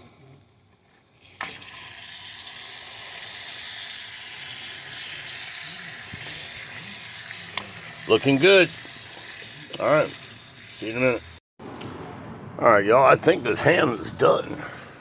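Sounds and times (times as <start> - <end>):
ham sizzling on a grill: 0.8 - 11.4, 14.2 - 15.0.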